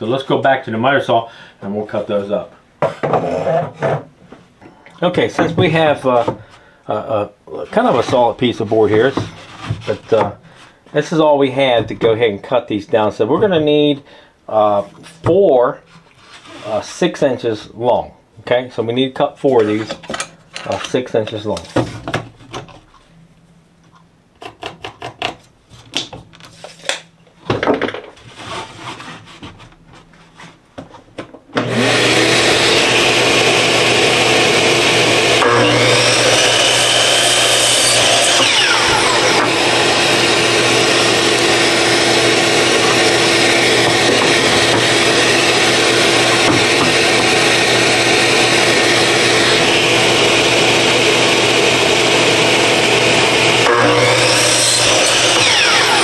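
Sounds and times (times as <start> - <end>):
power tool motor hum: 31.6 - 56.0.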